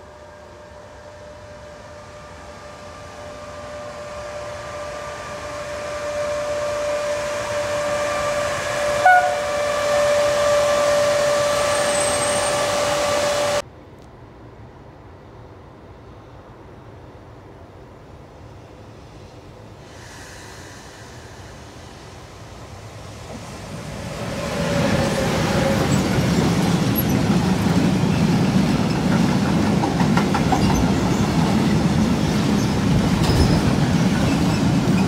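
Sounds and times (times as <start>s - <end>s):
locomotive high whine: 0.0s - 13.6s, 19.4s - 35.0s
train wheels rolling: 22.7s - 35.0s.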